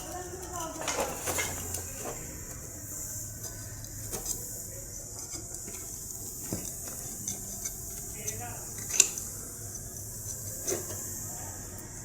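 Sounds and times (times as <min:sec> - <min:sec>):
tools clicking and knocking: 0:05.2 - 0:09.3.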